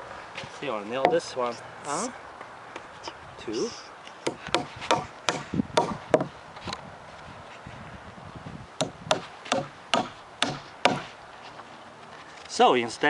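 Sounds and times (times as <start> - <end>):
hammer striking nails into wood: 4.2 - 6.3, 8.8 - 11.1.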